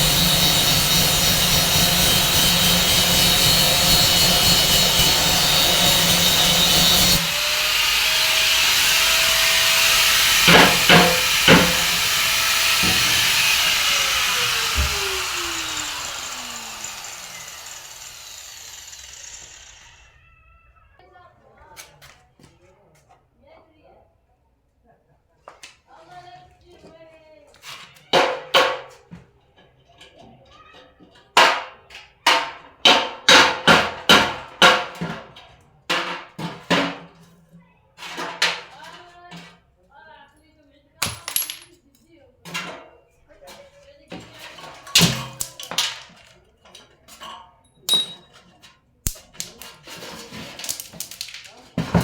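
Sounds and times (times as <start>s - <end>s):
washing machine winding down: 9.6s - 17.9s.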